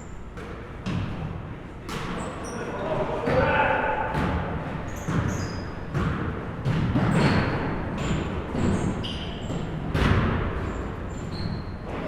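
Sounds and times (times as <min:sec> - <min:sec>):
echoing hall noise: 0:01.0 - 0:11.3
basketball bouncing on court: 0:03.3 - 0:12.0
shoe squeaks: 0:04.8 - 0:05.9, 0:07.1 - 0:09.7, 0:10.7 - 0:12.0.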